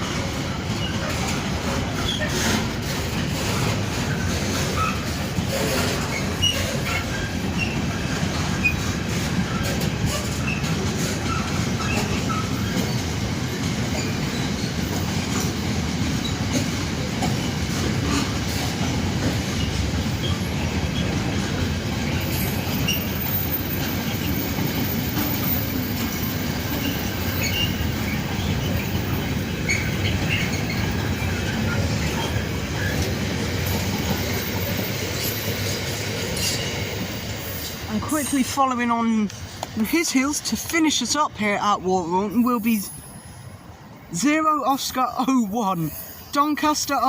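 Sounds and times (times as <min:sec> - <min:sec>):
train wheels rolling over rails: 0:00.0 - 0:44.1
faint wheel squeals: 0:25.0 - 0:29.0, 0:29.6 - 0:33.0.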